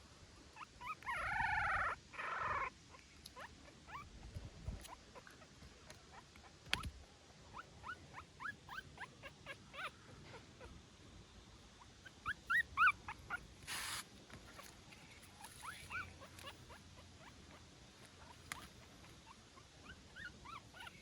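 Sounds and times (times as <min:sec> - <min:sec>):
puppy wailing: 0:00.6 - 0:02.7, 0:07.6 - 0:10.8, 0:12.0 - 0:14.0, 0:15.5 - 0:17.4, 0:18.5 - 0:21.0
puppy squeaking and whimpering: 0:00.6 - 0:05.5, 0:06.1 - 0:10.8, 0:11.8 - 0:14.8, 0:15.4 - 0:17.6, 0:18.2 - 0:21.0.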